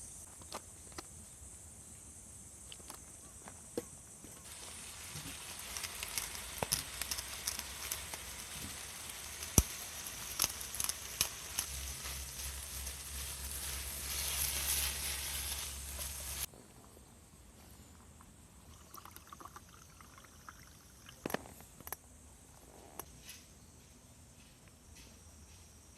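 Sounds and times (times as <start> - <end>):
food sizzling over campfire: 4.3 - 16.5
sharp popping: 4.4 - 16.5.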